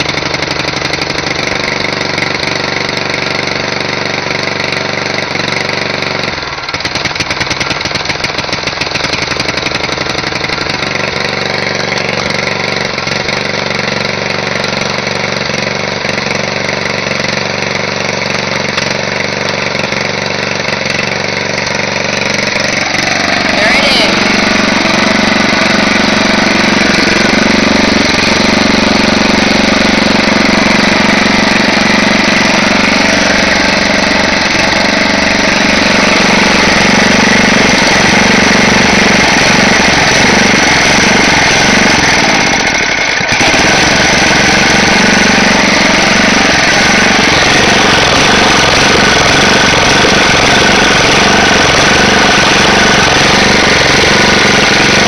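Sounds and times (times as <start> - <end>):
wood chipper engine running: 0.0 - 55.0.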